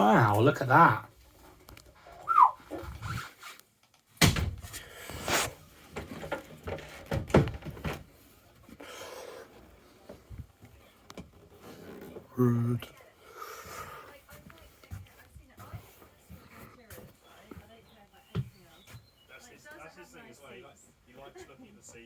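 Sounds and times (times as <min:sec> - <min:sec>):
sharp knocks and clatters: 0:05.9 - 0:08.1.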